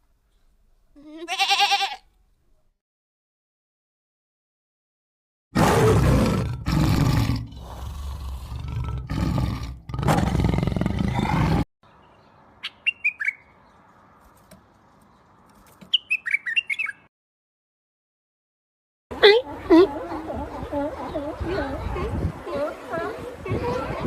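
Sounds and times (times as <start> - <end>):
large animal roaring: 5.6 - 11.6
small bird chirping: 12.0 - 13.8, 15.9 - 17.1.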